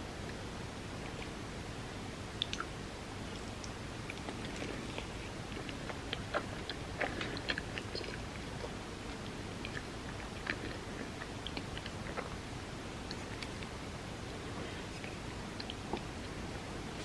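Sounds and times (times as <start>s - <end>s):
steady low hiss: 0.0s - 17.0s
chewing mouth clicks and smacks: 2.4s - 2.7s, 3.3s - 12.4s.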